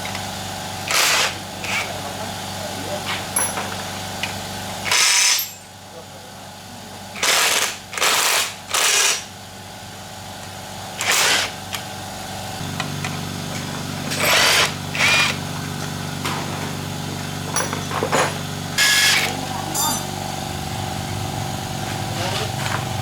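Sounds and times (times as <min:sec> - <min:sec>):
power tool motor humming: 0:00.8 - 0:01.9, 0:04.8 - 0:05.6, 0:07.2 - 0:09.3, 0:11.0 - 0:11.8, 0:12.6 - 0:23.0.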